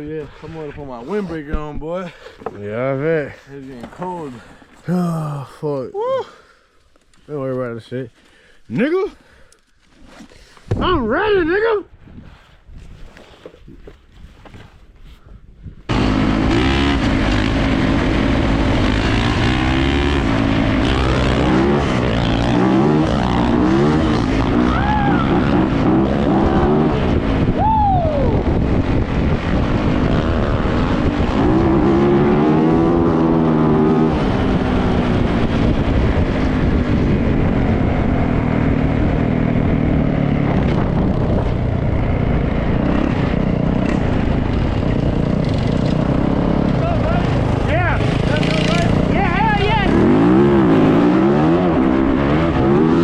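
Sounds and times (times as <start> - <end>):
dirt bike engine revving: 15.9 - 27.6, 28.3 - 53.0.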